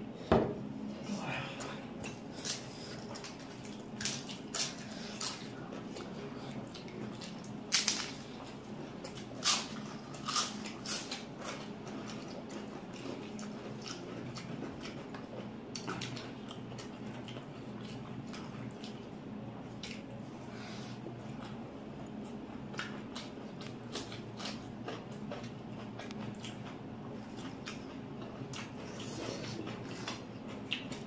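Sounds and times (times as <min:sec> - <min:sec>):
steady low hum: 0:00.0 - 0:31.0
wet chewing and lip smacks: 0:22.7 - 0:31.0.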